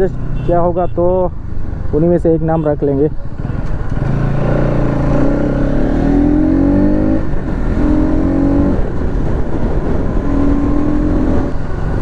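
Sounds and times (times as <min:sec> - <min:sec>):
motorcycle engine accelerating: 0:03.3 - 0:12.0.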